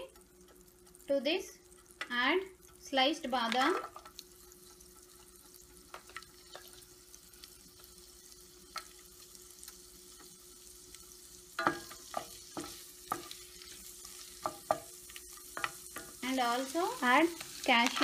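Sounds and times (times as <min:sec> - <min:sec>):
almonds sizzling in butter: 0:00.0 - 0:18.0
spatula scraping a pan: 0:11.6 - 0:18.0.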